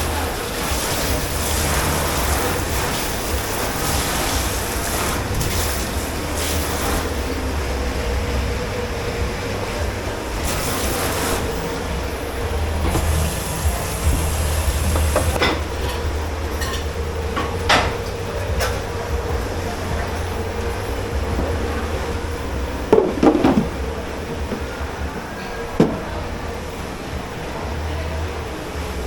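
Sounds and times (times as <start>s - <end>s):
hissing rushing water: 0.0s - 29.0s
machine humming and rumbling: 0.0s - 29.0s
crockery clattering: 22.8s - 24.8s.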